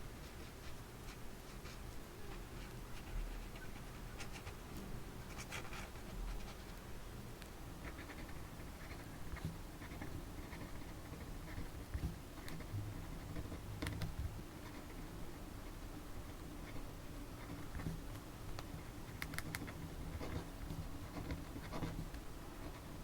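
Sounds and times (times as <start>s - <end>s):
scratching strokes on paper: 0.1s - 6.8s, 7.8s - 18.0s, 18.8s - 23.0s.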